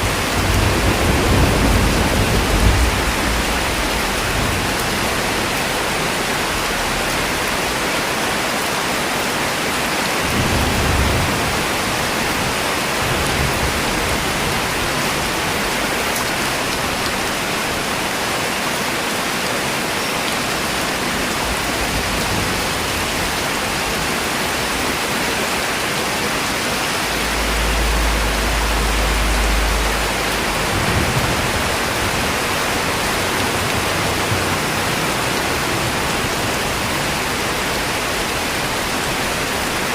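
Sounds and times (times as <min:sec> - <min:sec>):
heavy rain falling: 0:00.0 - 0:39.9
low rumbles: 0:26.4 - 0:37.7.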